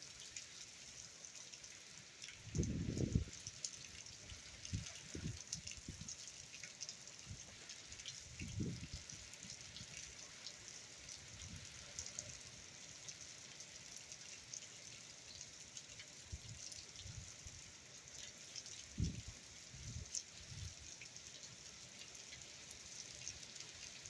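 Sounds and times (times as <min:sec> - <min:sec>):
steady rain falling: 0:00.0 - 0:24.0
wind buffeting microphone: 0:02.6 - 0:03.3, 0:08.4 - 0:09.0.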